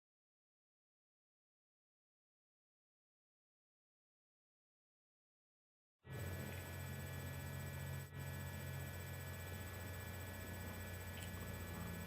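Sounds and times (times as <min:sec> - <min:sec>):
low electrical hum: 0:06.1 - 0:12.0.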